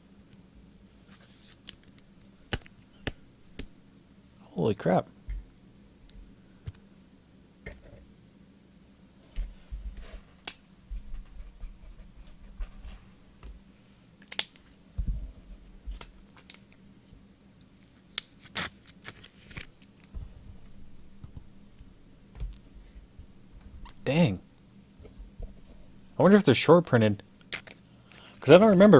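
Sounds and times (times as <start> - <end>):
dull thumps: 15.0 - 16.0.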